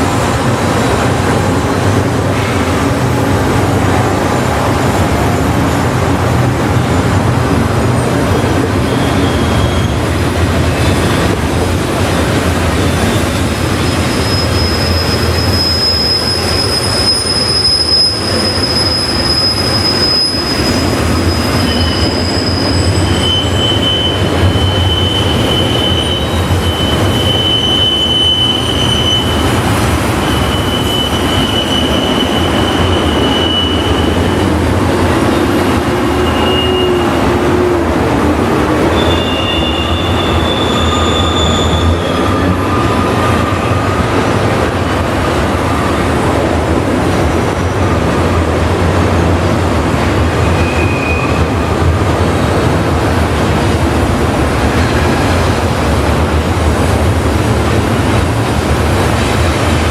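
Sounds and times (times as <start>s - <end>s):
freight train cars rumbling: 0.0s - 59.9s
train wheels squealing: 8.4s - 11.4s, 12.8s - 37.8s, 38.8s - 44.2s, 50.3s - 51.8s.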